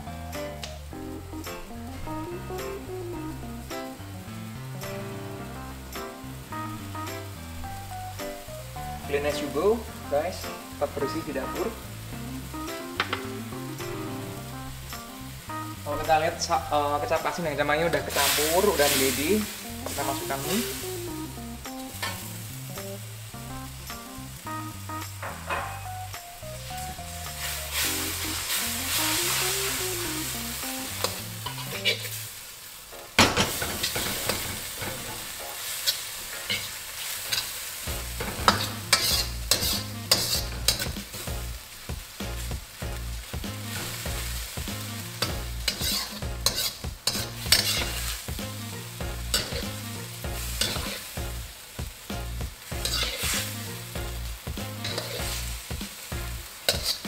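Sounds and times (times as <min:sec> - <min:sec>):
noodles sizzling in a wok: 0:00.3 - 0:57.0
metal ladle clacking and scraping wok: 0:31.0 - 0:32.1, 0:38.1 - 0:41.2, 0:45.2 - 0:48.1, 0:49.3 - 0:49.7, 0:50.6 - 0:51.1, 0:52.8 - 0:53.5, 0:54.8 - 0:55.3, 0:56.7 - 0:57.0.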